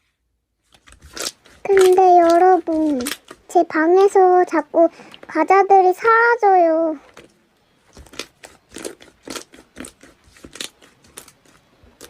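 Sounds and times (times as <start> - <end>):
crunchy snack being chewed: 0.8 - 3.5, 7.1 - 12.0.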